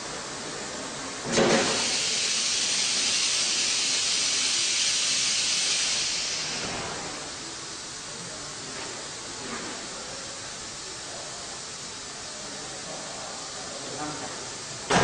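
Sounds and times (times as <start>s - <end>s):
compressed air hissing: 1.4s - 12.6s.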